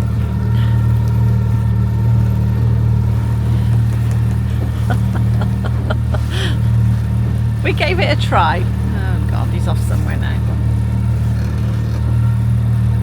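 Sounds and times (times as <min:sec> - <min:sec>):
boat motor droning: 0:00.0 - 0:13.0
faint knocks: 0:03.0 - 0:07.7.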